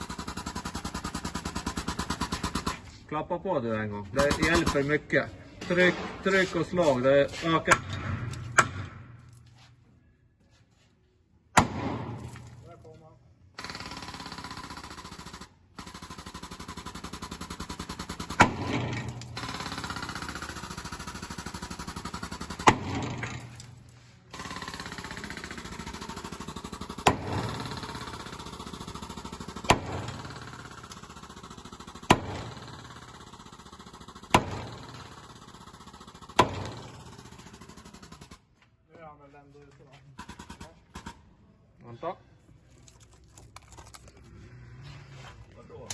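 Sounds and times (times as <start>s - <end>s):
sledgehammer striking metal bolt: 7.6s - 9.2s, 18.4s - 19.4s, 22.6s - 23.6s.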